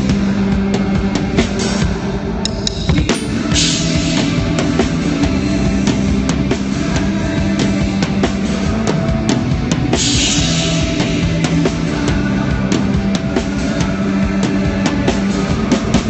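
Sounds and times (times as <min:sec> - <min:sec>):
bass and guitar notes: 0:02.4 - 0:14.4
drum kit steady beat: 0:02.5 - 0:16.0.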